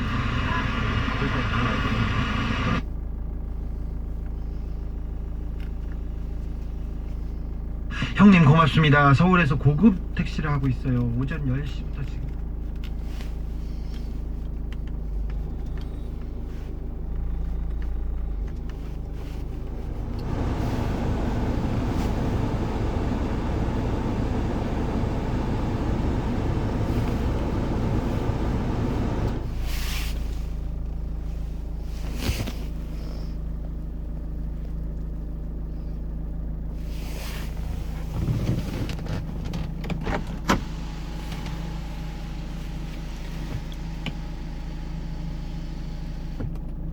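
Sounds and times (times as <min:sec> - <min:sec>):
suv engine running: 0:00.0 - 0:46.9.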